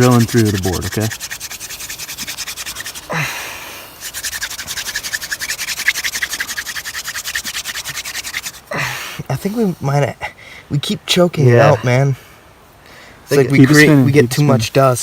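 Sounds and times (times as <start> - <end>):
fire drill spindle rubbing wood: 0.0 - 3.2, 4.0 - 8.7.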